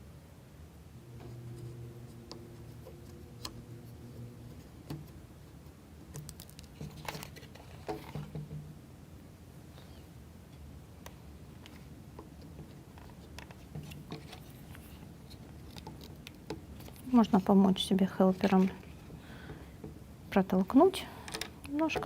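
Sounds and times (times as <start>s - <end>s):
faint clicks of wooden parts: 21.2s - 22.0s.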